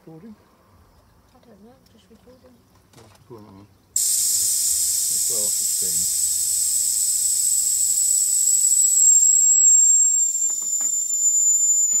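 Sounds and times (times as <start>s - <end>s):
steam hissing with whistling tone: 4.0s - 12.0s.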